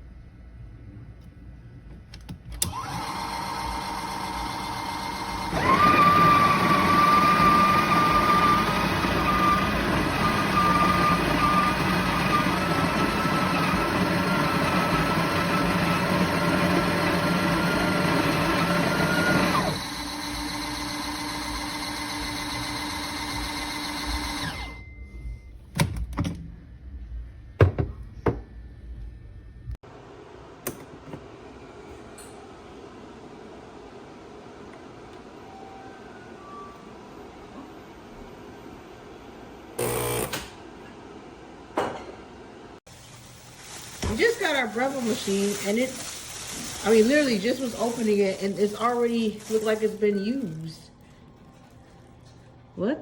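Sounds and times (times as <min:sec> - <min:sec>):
espresso machine motor hum: 0:02.7 - 0:24.6, 0:39.8 - 0:40.5.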